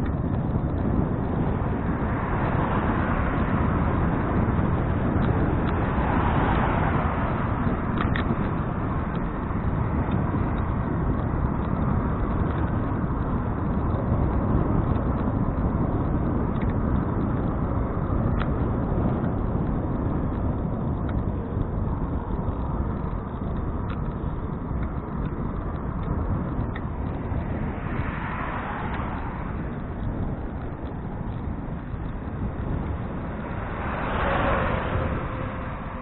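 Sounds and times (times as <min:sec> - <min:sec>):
bicycle rolling noise: 0:00.0 - 0:36.0
wind rushing: 0:00.0 - 0:36.0
faint ticks: 0:14.9 - 0:17.3, 0:19.2 - 0:35.8.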